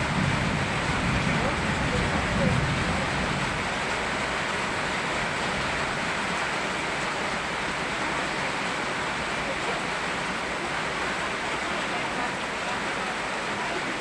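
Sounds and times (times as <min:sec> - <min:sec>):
river flowing: 0:00.0 - 0:14.0
steady rain falling: 0:00.0 - 0:14.0.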